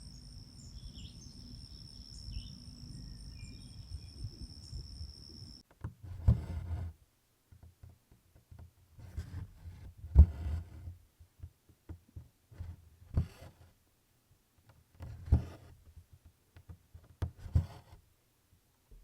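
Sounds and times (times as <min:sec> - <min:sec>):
bird chirps: 0:00.0 - 0:05.6
cricket trilling: 0:00.0 - 0:05.6.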